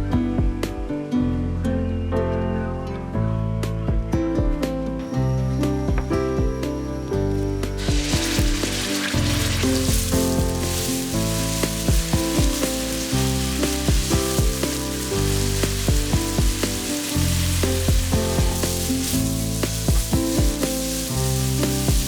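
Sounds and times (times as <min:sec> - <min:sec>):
background music: 0:00.0 - 0:22.0
food sizzling in a pan: 0:07.2 - 0:22.0.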